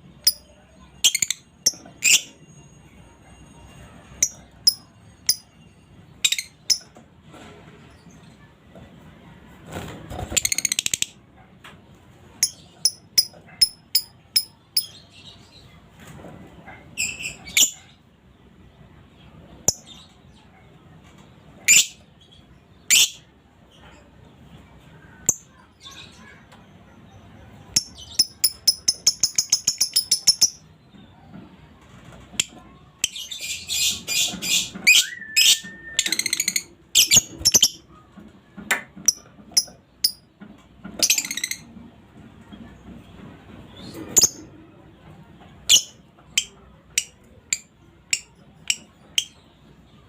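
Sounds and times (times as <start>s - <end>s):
lovebird chirping and chattering: 0.2s - 2.4s, 4.2s - 5.5s, 6.2s - 6.9s, 12.4s - 15.4s, 17.0s - 17.9s, 21.6s - 22.0s, 22.9s - 23.2s, 27.7s - 30.7s, 32.4s - 37.9s, 41.0s - 41.7s, 43.8s - 44.5s, 45.7s - 49.4s.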